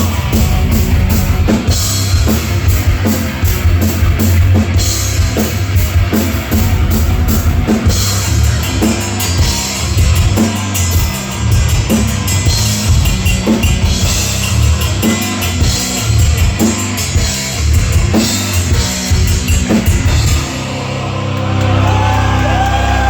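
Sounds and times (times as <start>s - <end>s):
drum kit beat: 0.0s - 22.8s
electric guitar: 0.0s - 23.0s.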